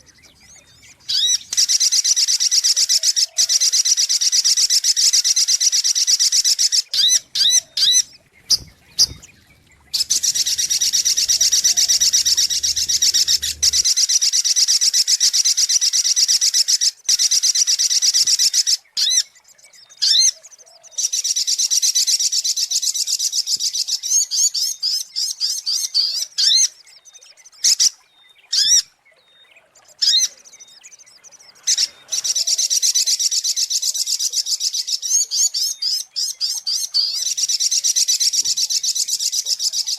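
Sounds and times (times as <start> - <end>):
bird song rapid high chips: 7.0 - 13.9.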